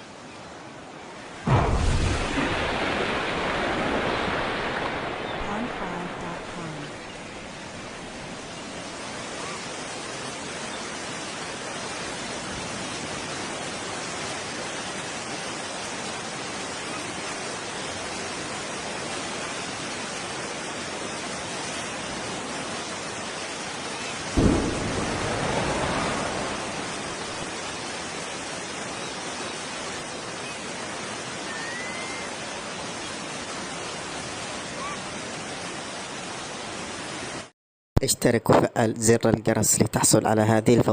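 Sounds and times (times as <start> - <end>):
deep explosion boom: 1.5 - 5.5, 24.4 - 27.7
steady rushing noise: 24.3 - 31.3.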